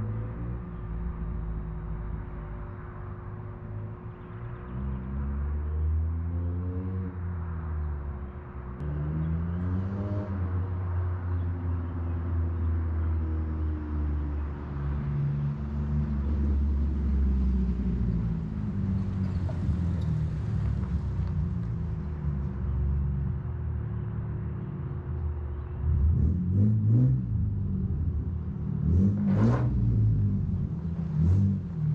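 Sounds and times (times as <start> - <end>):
car engine exhaust drone: 14.3 - 31.9.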